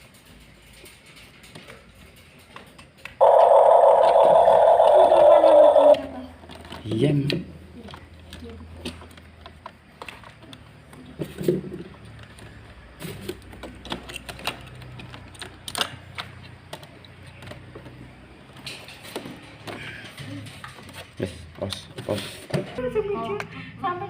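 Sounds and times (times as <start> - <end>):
plastic toy bulldozer clicking: 12.1 - 18.0.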